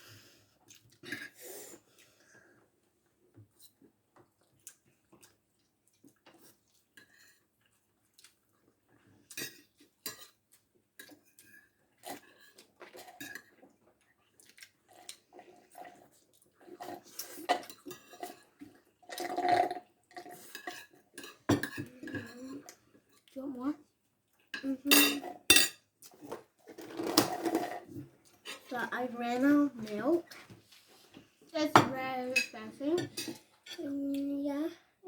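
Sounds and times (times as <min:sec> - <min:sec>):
cutlery and dishes clinking: 0:09.3 - 0:10.4, 0:11.0 - 0:13.6, 0:16.8 - 0:18.6, 0:20.2 - 0:22.6, 0:24.5 - 0:28.7, 0:31.7 - 0:33.9.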